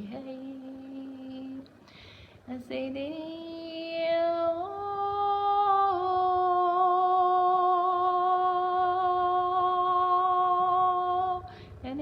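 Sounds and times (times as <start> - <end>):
woman singing long note: 2.5 - 12.0.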